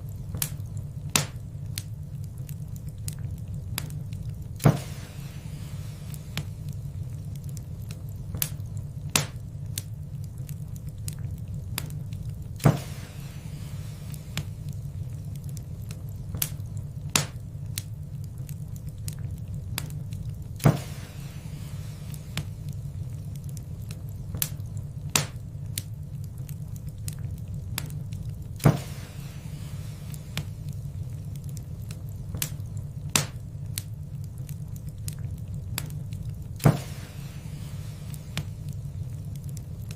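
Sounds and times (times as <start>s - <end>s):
loud snap of fire: 0.0s - 39.9s
wood fire crackling: 0.0s - 39.9s.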